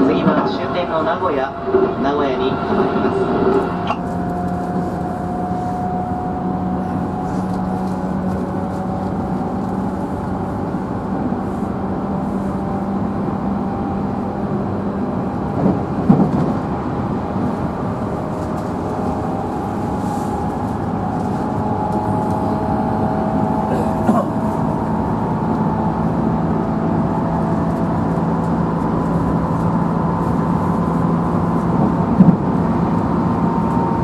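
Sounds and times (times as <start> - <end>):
train clatter: 0.0 - 6.1, 14.5 - 34.0
electric train running: 0.0 - 12.0, 13.4 - 34.0.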